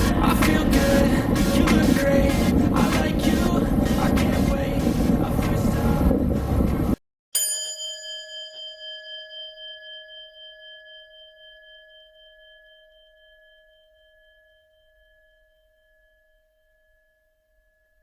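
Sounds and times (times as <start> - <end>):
metal singing bowl ringing: 7.4 - 18.0.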